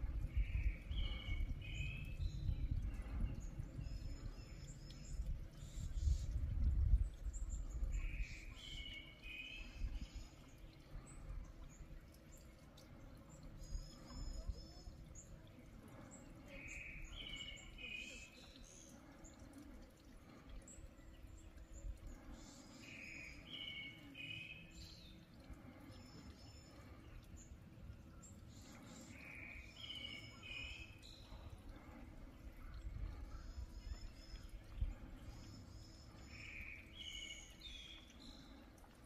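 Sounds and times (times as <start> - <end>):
low wind rumble: 0.0 - 8.2
birds singing: 0.0 - 39.0.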